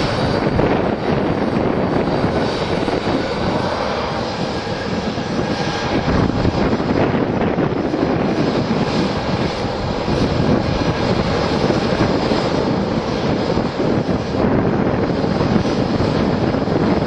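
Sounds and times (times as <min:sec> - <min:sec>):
jet engines at takeoff thrust: 0:00.0 - 0:17.0.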